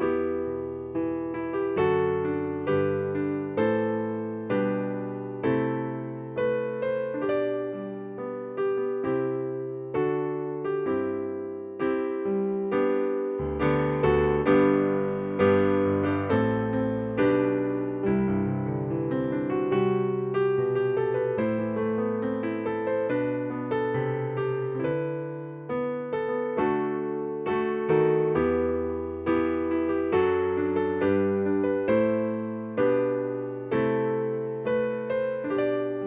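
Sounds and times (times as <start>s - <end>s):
electric piano chords: 0.0s - 36.0s.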